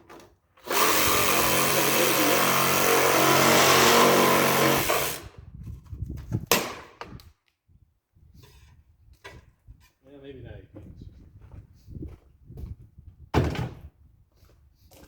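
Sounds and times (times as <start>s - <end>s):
power tool cutting plastic: 0.6s - 5.3s.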